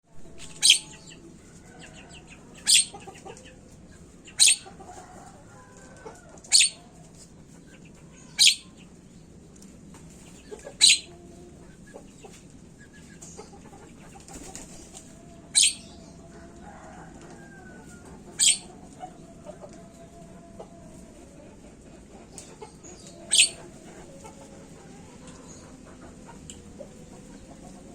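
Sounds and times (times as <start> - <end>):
myna bird sharp calls: 0.4 - 1.1, 2.6 - 3.0, 4.3 - 4.7, 8.3 - 8.7, 10.8 - 11.1, 18.4 - 18.7, 23.3 - 23.6.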